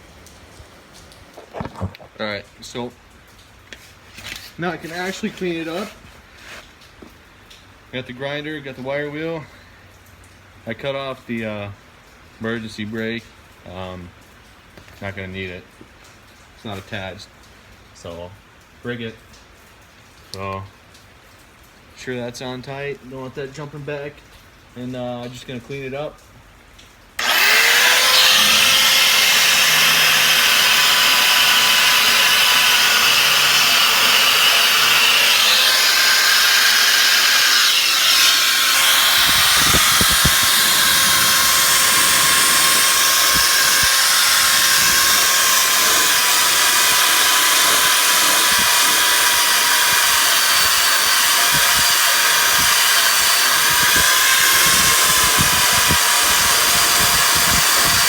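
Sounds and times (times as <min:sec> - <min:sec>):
wire wheel grinder on metal: 0:27.2 - 0:58.0.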